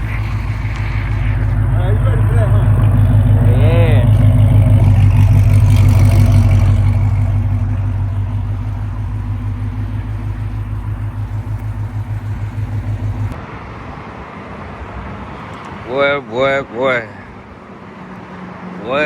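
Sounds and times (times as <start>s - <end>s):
car engine idling with exhaust throb: 0.0s - 13.4s.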